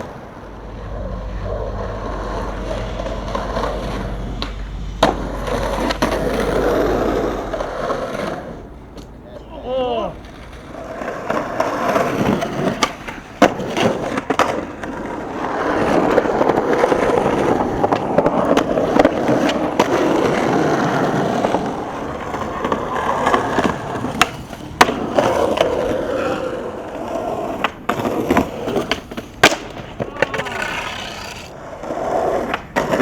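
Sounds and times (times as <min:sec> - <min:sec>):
skateboard clacks: 0:00.0 - 0:33.0
skateboard wheels rolling: 0:00.0 - 0:33.0.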